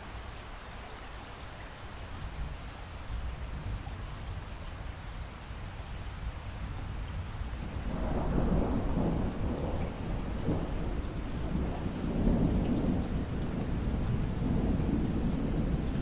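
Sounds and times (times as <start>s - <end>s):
steady rain falling: 0.0s - 16.0s
rolling thunder: 7.0s - 16.0s.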